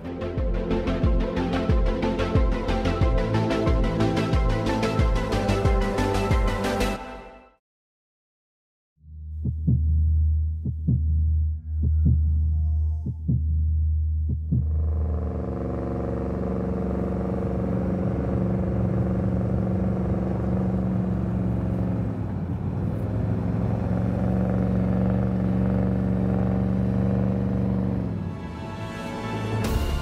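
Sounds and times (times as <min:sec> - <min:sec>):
engine running under heavy load: 0:14.6 - 0:28.6.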